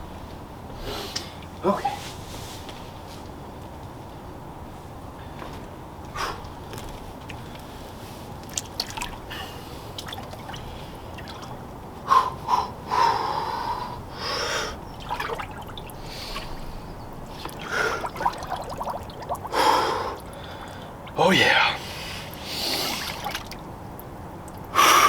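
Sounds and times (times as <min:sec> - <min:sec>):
water splashing and dripping: 0:08.4 - 0:11.7, 0:14.9 - 0:21.2, 0:22.3 - 0:24.7
sharp gasping breaths: 0:12.1 - 0:14.8, 0:16.0 - 0:16.9, 0:19.5 - 0:21.0, 0:21.8 - 0:23.3.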